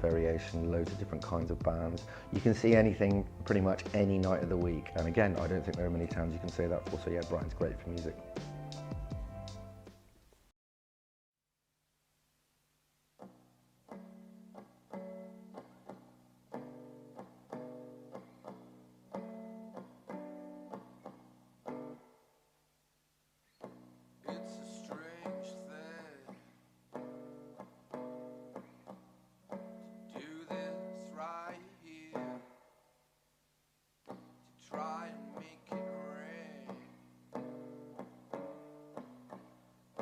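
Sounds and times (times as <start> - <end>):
guitar bending high notes: 0.0 - 9.9
guitar picked chords: 0.0 - 10.0, 13.2 - 22.1, 23.6 - 32.7, 34.1 - 40.0.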